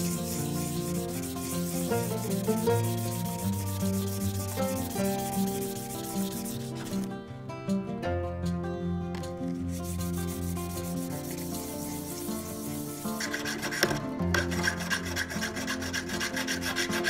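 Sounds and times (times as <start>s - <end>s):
ring scratching on sandpaper: 0.0s - 7.1s, 9.6s - 17.0s.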